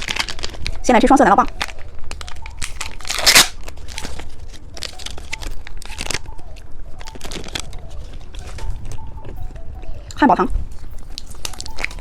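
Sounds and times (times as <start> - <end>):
wet chewing clicks: 0.0 - 12.0
crunchy bites of candy: 1.6 - 6.2.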